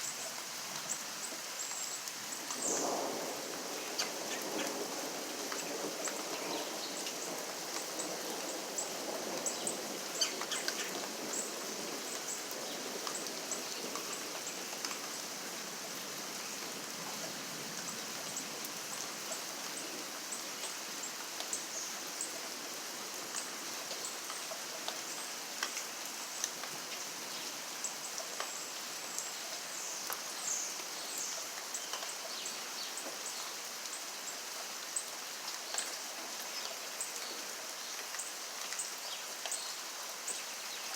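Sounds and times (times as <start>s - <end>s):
steady rain hiss: 0.0s - 40.9s
raindrops ticking: 2.1s - 15.2s.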